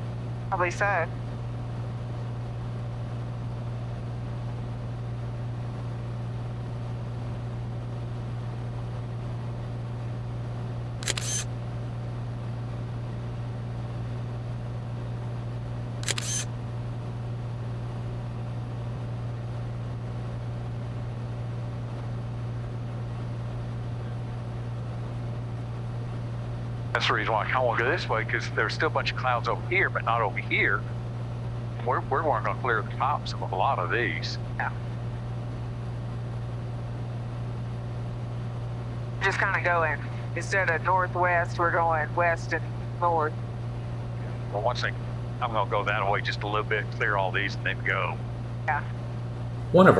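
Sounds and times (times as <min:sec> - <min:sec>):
airplane engine and propeller drone: 0:00.0 - 0:49.9
short sharp clicks: 0:11.0 - 0:11.4, 0:16.0 - 0:16.5.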